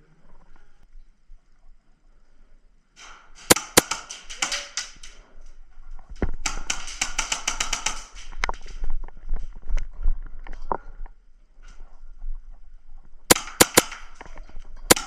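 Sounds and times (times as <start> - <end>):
airsoft guns firing: 3.0 - 5.2, 6.4 - 8.7, 13.3 - 14.3.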